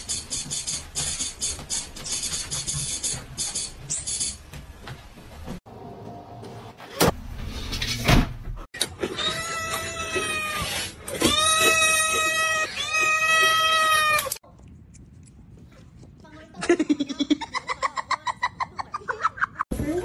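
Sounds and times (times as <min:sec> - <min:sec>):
long drawn-out animal cries: 0:09.0 - 0:14.4.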